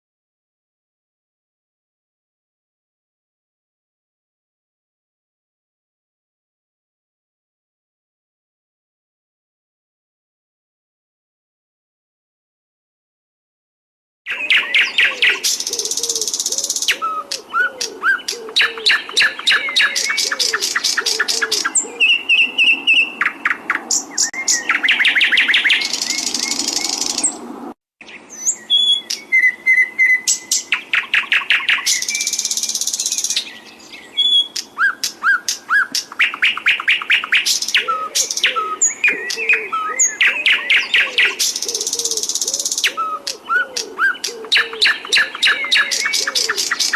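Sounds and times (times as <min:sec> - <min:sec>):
songbird trills and chirps: 0:14.3 - 0:27.4, 0:28.0 - 0:46.9
low swooping bird notes: 0:14.4 - 0:27.8.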